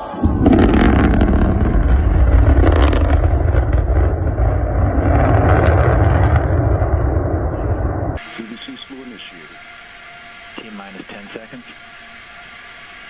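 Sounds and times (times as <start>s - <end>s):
rocket launch roar: 0.0s - 9.2s
sharp crackle: 0.2s - 13.0s.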